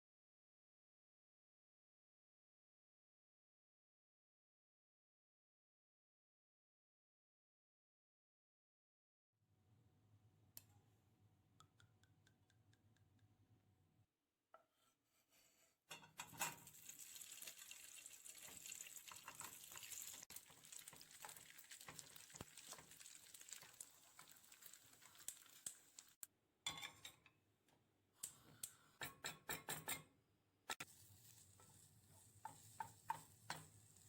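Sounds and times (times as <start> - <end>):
kitchenware clinks and knocks: 15.9 - 16.8, 26.7 - 27.3, 29.0 - 30.1
food crackling in pan: 16.2 - 26.3, 30.8 - 34.0.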